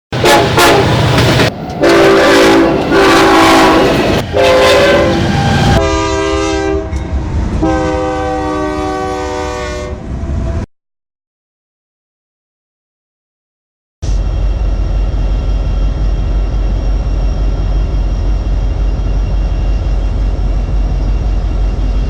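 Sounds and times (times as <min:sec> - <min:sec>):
locomotive air horn blasts: 0:00.1 - 0:01.1, 0:01.8 - 0:07.0, 0:07.6 - 0:10.0
passing train rumble: 0:00.1 - 0:10.7, 0:14.0 - 0:22.0.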